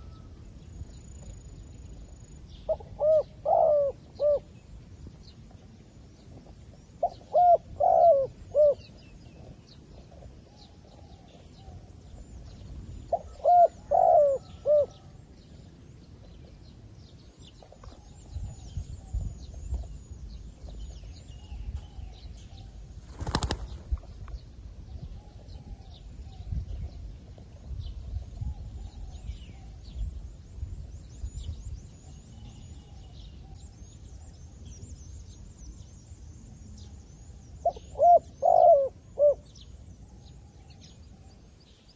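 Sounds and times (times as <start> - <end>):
small birds chirping: 0.0 - 41.9
dove cooing: 2.7 - 4.5, 7.0 - 8.9, 13.1 - 15.2, 37.6 - 39.5.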